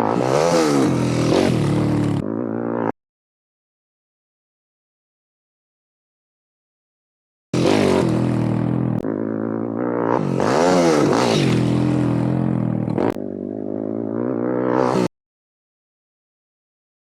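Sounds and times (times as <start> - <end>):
pit bike engine revving: 0.0 - 2.9, 7.6 - 15.1.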